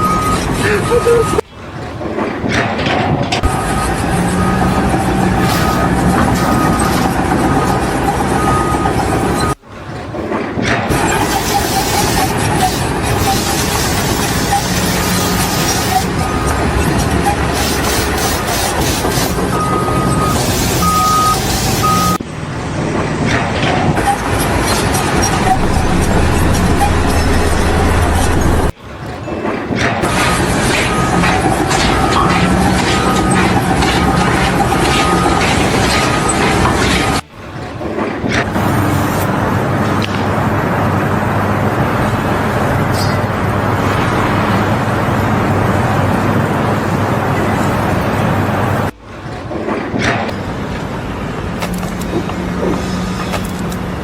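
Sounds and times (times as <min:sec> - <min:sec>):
electronic warning beeps: 0:00.0 - 0:01.5, 0:03.4 - 0:09.6, 0:10.9 - 0:22.2, 0:24.0 - 0:28.8, 0:30.0 - 0:37.2
heavy engine running: 0:00.0 - 0:54.0
loud rushing noise: 0:01.5 - 0:51.6.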